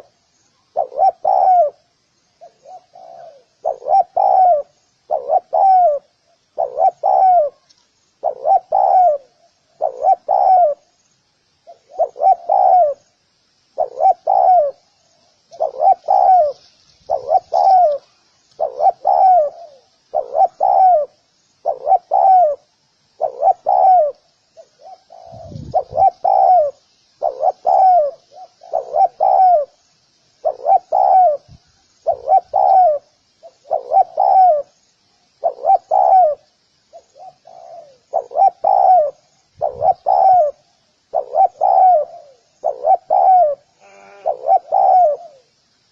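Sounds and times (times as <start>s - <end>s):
dove cooing: 0.0s - 10.9s, 11.6s - 13.2s, 13.8s - 29.8s, 30.4s - 34.8s, 35.4s - 45.6s
faint high chirping: 0.0s - 45.9s.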